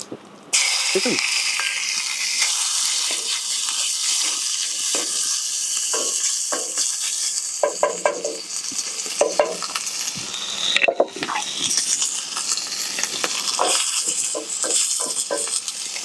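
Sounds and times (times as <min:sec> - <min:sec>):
chicken sizzling in oil: 0:00.5 - 0:16.0
utensil knocking and scraping pan: 0:06.0 - 0:06.9, 0:07.6 - 0:08.4, 0:13.6 - 0:15.6.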